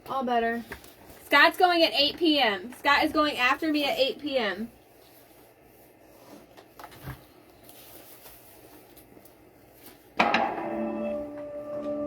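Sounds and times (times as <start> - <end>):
faint handling noises: 0.1 - 3.0, 4.7 - 10.2.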